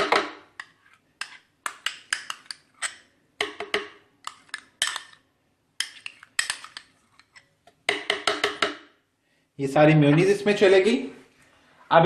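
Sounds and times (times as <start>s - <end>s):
spoon tapping and scraping container: 0.0s - 5.2s, 5.8s - 8.8s.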